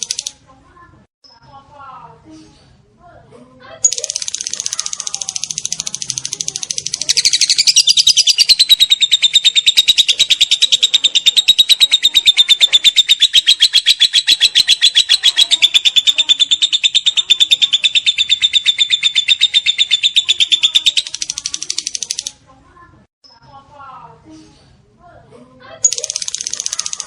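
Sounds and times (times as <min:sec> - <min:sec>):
lovebird chattering trill: 0:00.0 - 0:00.3, 0:03.8 - 0:22.3, 0:25.8 - 0:27.0.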